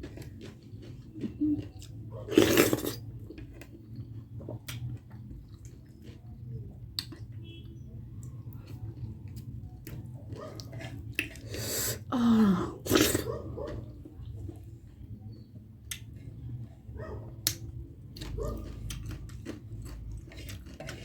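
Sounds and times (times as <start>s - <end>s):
chewing: 0.0s - 12.0s, 12.8s - 21.0s.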